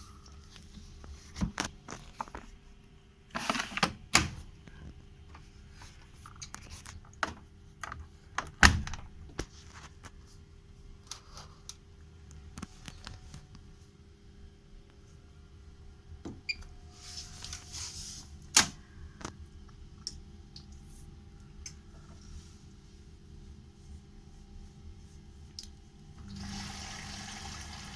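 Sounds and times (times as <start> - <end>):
steady low hum: 7.1 - 26.4.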